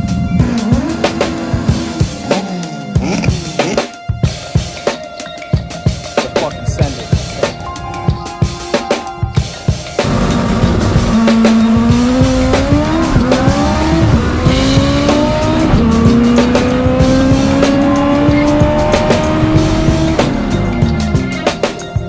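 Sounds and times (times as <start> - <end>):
music: 0.0 - 22.0
car engine accelerating through gears: 10.0 - 21.7.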